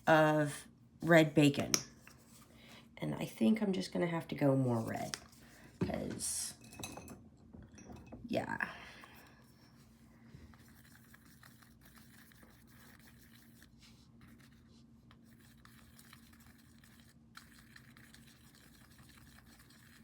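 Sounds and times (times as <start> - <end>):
paintbrush dabbing paint: 9.8 - 20.0.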